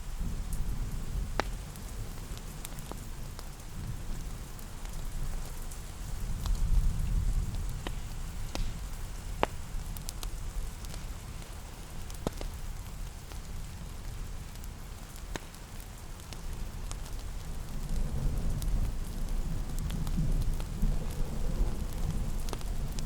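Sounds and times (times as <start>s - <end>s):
rain hiss: 0.0s - 23.0s
wood fire crackling: 0.1s - 23.0s.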